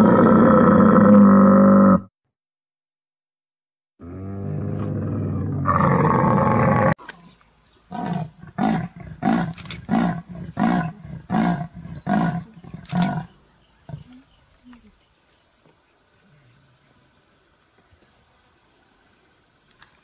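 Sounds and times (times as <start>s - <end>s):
clouded leopard moaning roars: 4.0s - 7.0s, 7.9s - 14.1s
camel groaning: 7.9s - 14.1s.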